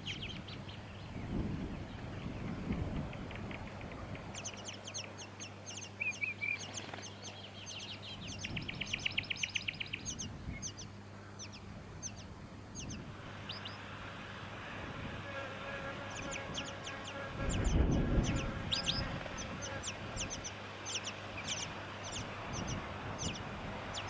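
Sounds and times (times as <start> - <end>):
small birds calling: 0.0 - 24.0.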